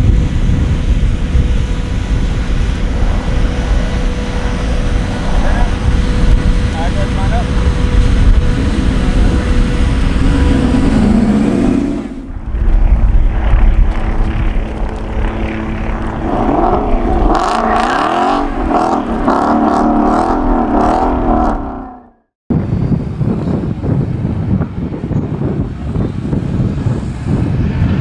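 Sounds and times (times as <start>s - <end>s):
drag car engines accelerating: 0.4s - 12.3s, 13.9s - 22.2s.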